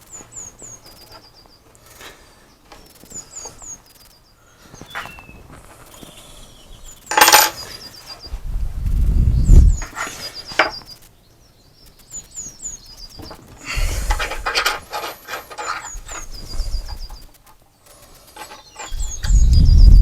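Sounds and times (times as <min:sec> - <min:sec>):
small bird chirping: 0:00.0 - 0:20.0
low rumbles: 0:08.3 - 0:09.8.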